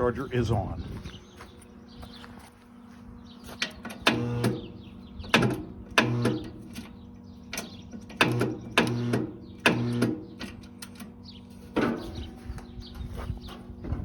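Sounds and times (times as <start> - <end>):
starter motor humming: 3.5 - 14.0.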